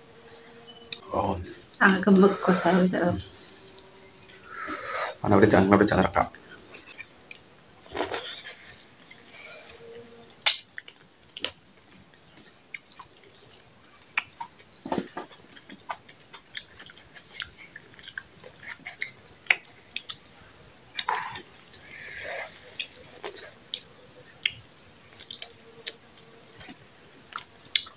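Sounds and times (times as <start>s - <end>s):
people chewing food: 0.0s - 27.9s
wet mouth clicks and smacks: 12.8s - 20.3s.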